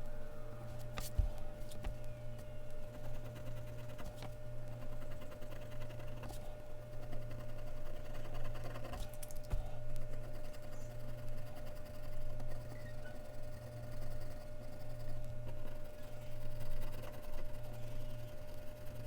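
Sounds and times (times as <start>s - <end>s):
steady low hum: 0.0s - 19.0s
pencil scratching on paper: 2.9s - 9.2s, 10.0s - 19.0s.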